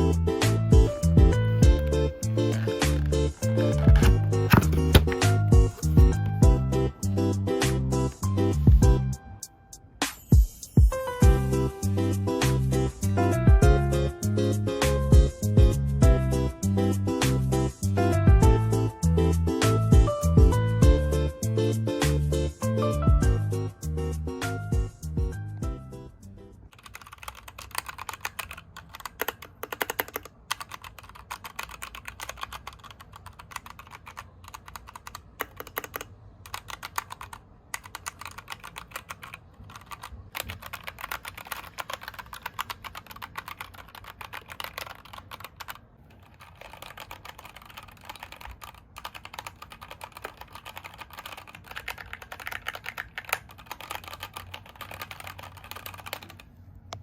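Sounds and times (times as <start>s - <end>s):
mechanical keyboard typing: 0.9s - 6.6s, 26.7s - 56.5s.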